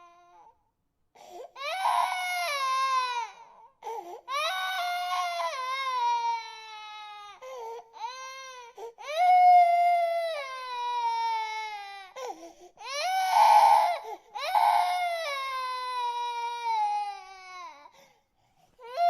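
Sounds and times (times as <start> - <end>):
infant crying: 0.0 - 0.5, 1.2 - 18.0, 18.8 - 19.0
infant gasping for breath: 7.4 - 7.9, 12.2 - 12.8, 17.9 - 18.8.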